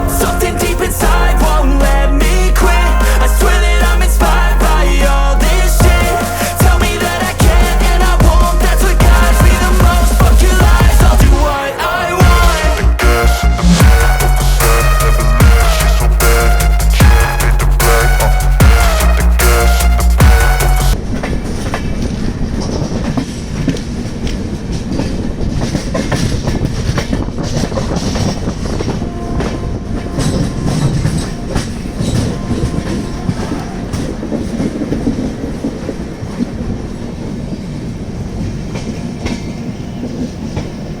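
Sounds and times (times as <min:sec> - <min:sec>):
train rumble: 0:00.0 - 0:41.0
wheels clickety-clack over rail joints: 0:21.0 - 0:41.0.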